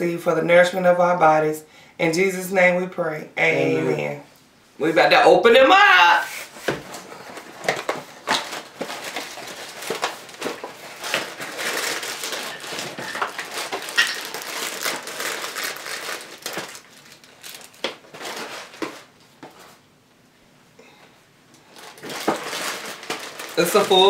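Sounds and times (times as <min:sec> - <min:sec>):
plastic bags crinkling: 0:06.9 - 0:19.8, 0:21.6 - 0:24.0.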